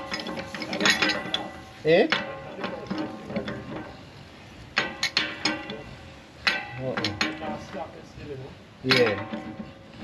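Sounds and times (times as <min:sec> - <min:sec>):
plumbing tools clicking on metal pipe: 0:00.0 - 0:04.2, 0:04.8 - 0:08.0, 0:08.8 - 0:10.0.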